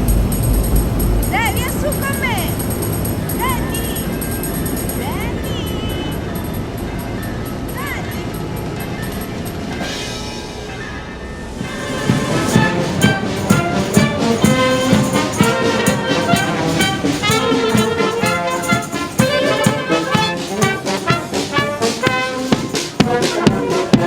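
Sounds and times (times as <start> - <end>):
brass band playing: 8.3 - 24.0.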